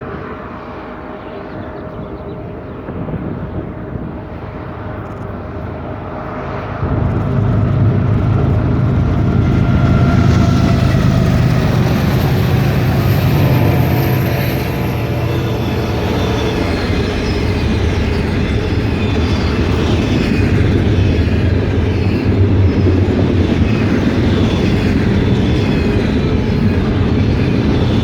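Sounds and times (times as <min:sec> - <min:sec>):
diesel locomotive engine drone: 0:00.0 - 0:28.0
high whine: 0:02.6 - 0:28.0.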